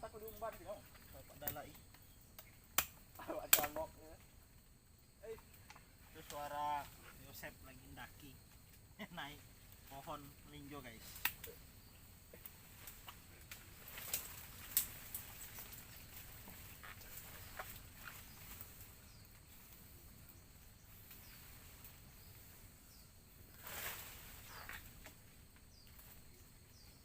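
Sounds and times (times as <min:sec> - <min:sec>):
leaves rustling: 0:00.0 - 0:27.0
twigs snapping: 0:00.2 - 0:04.2, 0:11.1 - 0:11.6, 0:12.4 - 0:19.5.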